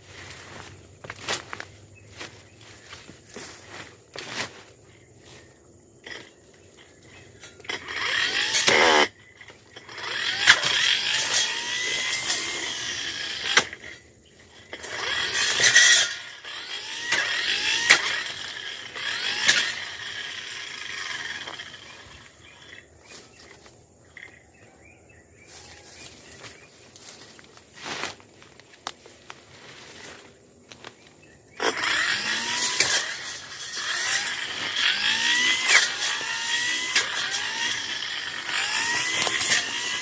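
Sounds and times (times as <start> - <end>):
brush cutter slashing undergrowth: 0.0 - 24.5, 25.4 - 40.0
stems and debris clicking: 26.4 - 29.4.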